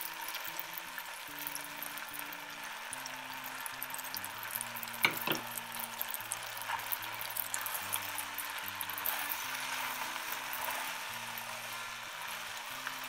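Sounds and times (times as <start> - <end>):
fried rice sizzling in a pot: 0.0 - 13.0
sharp knocks on a pot: 5.0 - 5.5
spatula stirring: 5.0 - 12.7.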